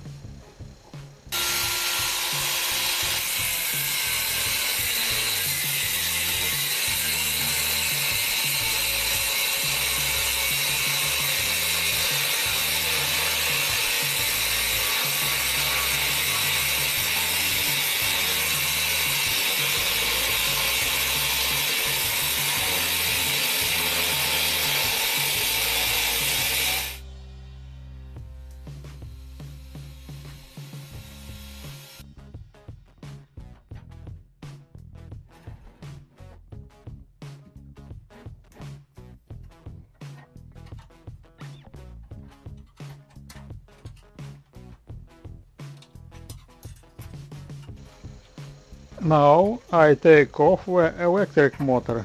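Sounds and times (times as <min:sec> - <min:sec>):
angle grinder cutting metal: 0:01.3 - 0:27.0, 0:28.9 - 0:32.0, 0:46.2 - 0:52.0.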